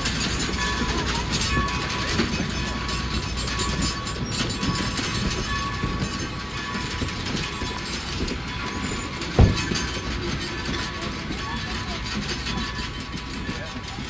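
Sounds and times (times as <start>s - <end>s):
train cars rattling on rails: 0.0s - 14.0s
loud thump: 9.4s - 9.9s.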